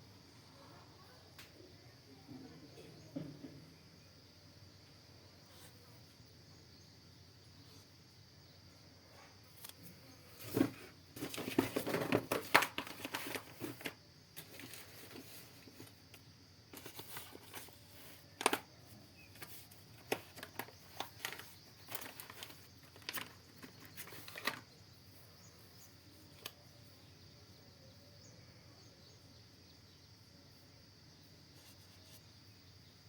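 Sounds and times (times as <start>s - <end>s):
rustling and crinkling: 9.2s - 25.2s.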